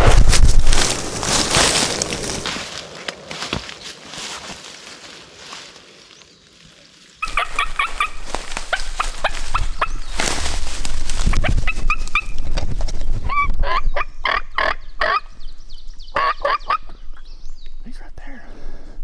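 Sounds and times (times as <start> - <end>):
turkeys yelping: 7.2 - 10.6, 13.3 - 15.2, 16.2 - 16.9.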